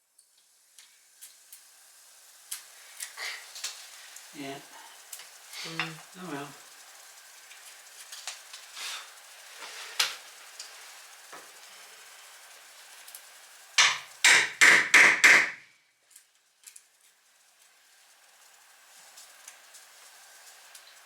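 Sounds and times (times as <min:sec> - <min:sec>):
hammer tapping: 0:13.8 - 0:15.6.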